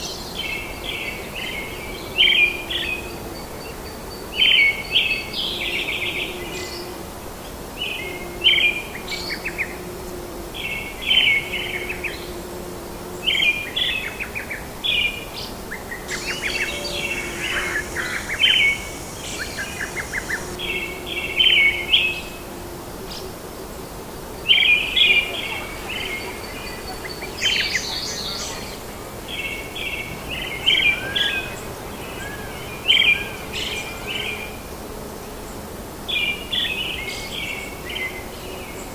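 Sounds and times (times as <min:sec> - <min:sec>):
steady background hiss: 0:00.0 - 0:38.9
birds chirping: 0:10.5 - 0:22.5, 0:23.1 - 0:34.8.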